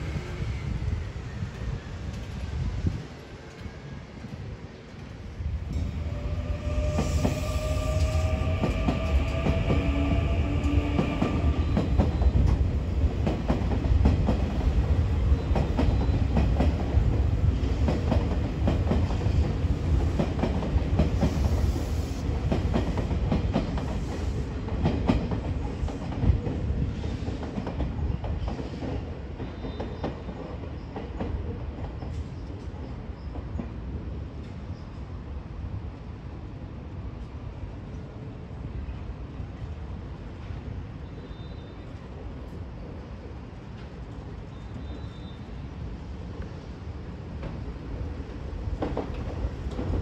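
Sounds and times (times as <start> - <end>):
train rumbling: 0.0 - 50.0
train motor whine: 5.8 - 12.4.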